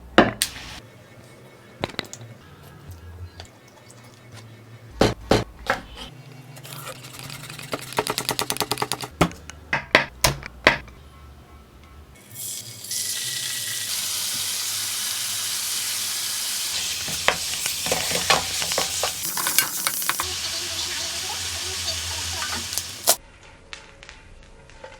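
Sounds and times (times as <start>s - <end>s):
chicken sizzling in a pan: 0.4s - 0.8s, 12.2s - 23.2s
soft background music: 0.8s - 6.8s, 9.4s - 14.7s.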